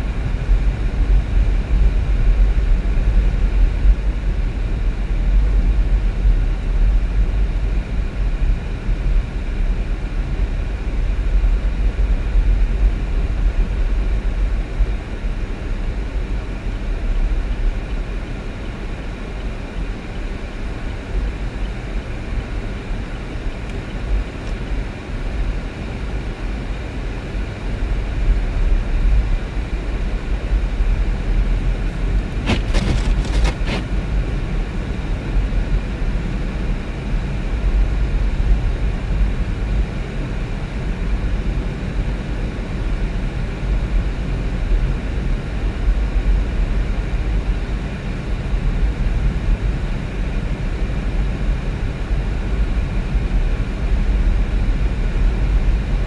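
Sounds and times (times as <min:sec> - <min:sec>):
vehicle engine and road noise: 0:28.6 - 0:35.6.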